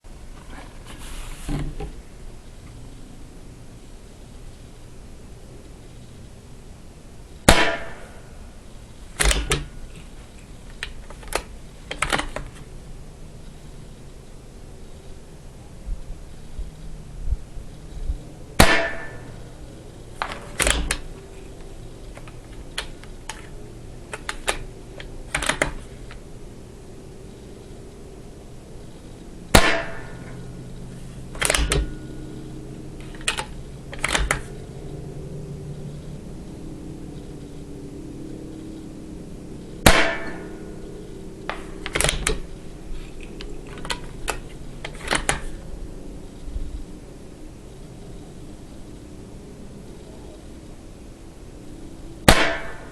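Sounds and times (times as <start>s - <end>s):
low wind rumble: 1.7s - 52.9s
paintball rifle shot: 7.5s - 8.2s, 18.6s - 19.2s, 29.5s - 30.2s, 39.8s - 40.5s, 52.3s - 52.9s.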